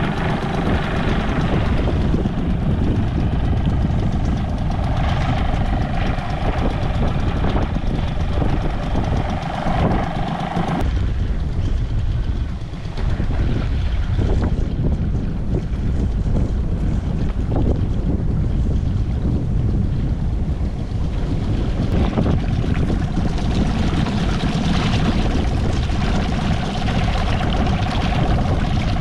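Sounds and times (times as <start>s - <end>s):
outboard motor idling: 0.0s - 10.8s
high steady whine: 0.0s - 15.5s.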